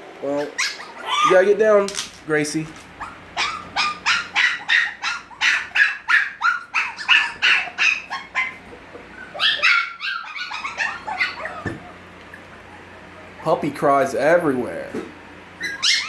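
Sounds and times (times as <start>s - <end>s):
puppies yelping: 0.2s - 13.4s, 15.5s - 16.0s.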